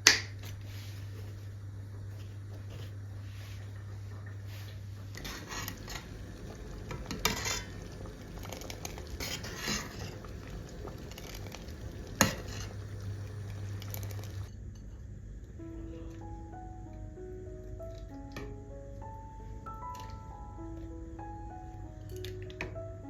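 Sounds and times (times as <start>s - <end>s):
low hum: 1.4s - 14.6s
spoon stirring and scraping: 4.5s - 14.5s.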